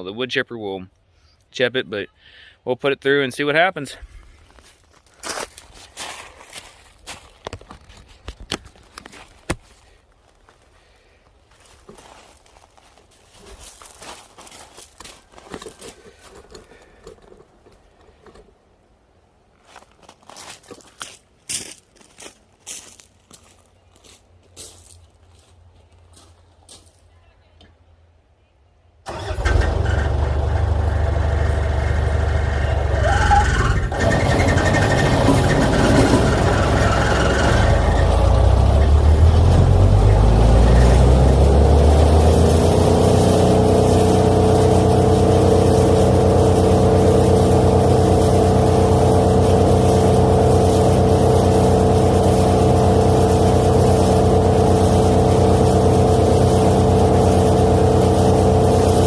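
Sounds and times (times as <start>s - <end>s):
wood chipper engine running: 29.1s - 59.0s.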